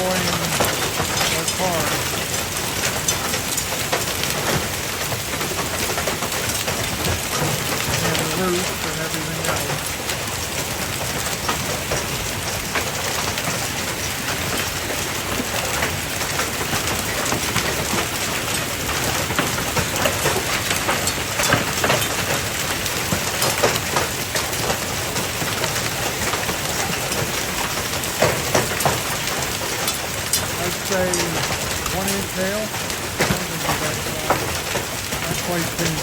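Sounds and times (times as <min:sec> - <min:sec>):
hail rattling on roof: 0:00.0 - 0:36.0.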